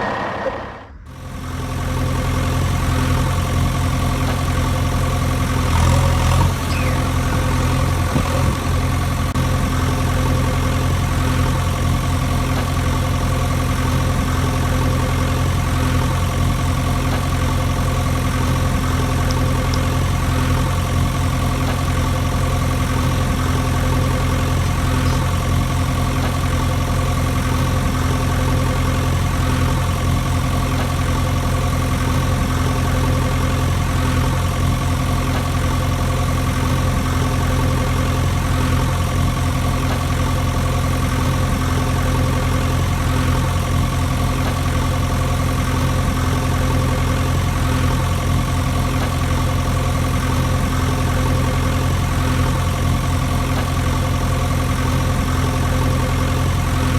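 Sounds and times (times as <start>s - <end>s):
engine idling: 0.0s - 56.9s.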